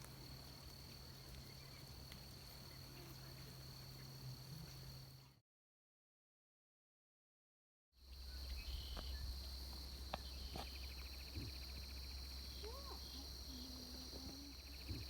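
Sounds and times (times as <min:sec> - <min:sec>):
insects droning: 0:00.0 - 0:05.4, 0:08.0 - 0:15.0
rapid pulsing insect trill: 0:00.0 - 0:05.4, 0:08.0 - 0:15.0.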